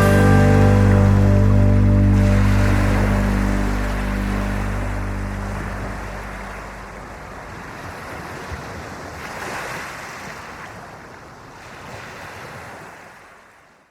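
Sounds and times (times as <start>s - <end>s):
ocean waves washing onto beach: 0.0s - 13.7s.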